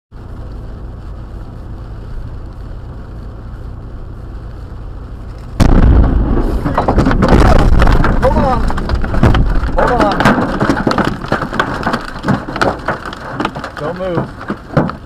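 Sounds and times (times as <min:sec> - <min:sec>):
low storm rumble: 0:00.1 - 0:15.0
thunderclap: 0:05.5 - 0:14.8.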